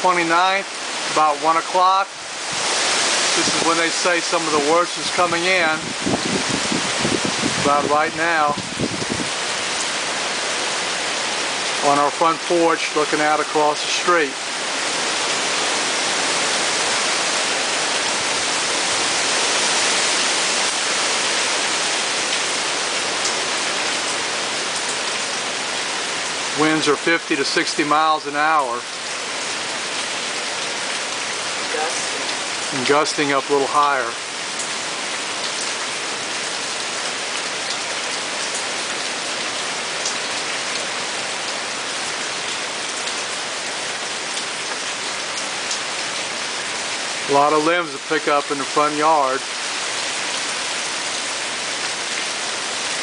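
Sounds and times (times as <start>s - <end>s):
heavy rain: 0.0s - 53.0s
strong wind: 2.2s - 11.6s.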